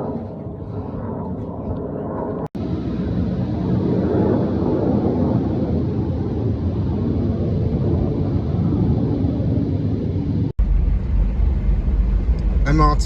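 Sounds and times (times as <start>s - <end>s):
car driving drone: 0.0s - 13.0s
jet rumbling overhead: 0.0s - 13.0s.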